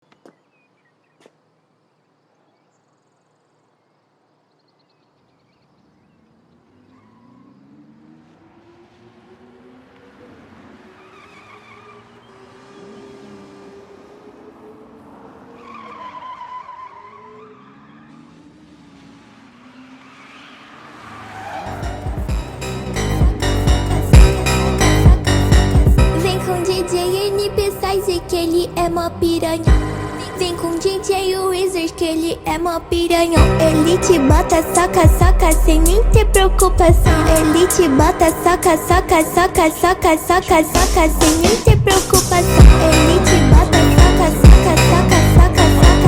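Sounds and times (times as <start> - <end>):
engine sweeping up and down in pitch: 17.2 - 46.0.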